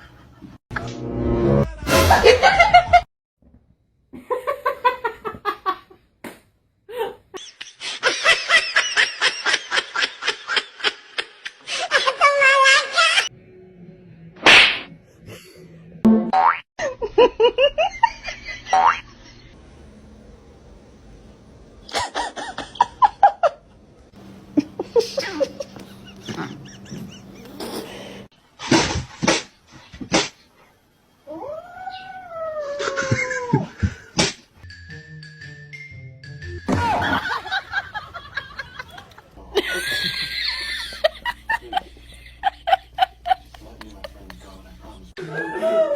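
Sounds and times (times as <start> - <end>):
steady hum: 23.9 - 28.3
person laughing: 24.5 - 28.2, 32.8 - 34.2, 36.7 - 44.4
cat yowling: 31.3 - 33.4.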